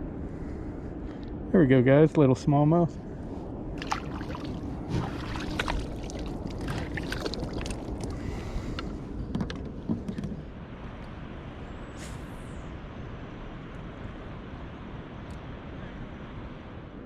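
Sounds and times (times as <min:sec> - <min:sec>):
water splashing around a kayak: 0:03.8 - 0:09.1.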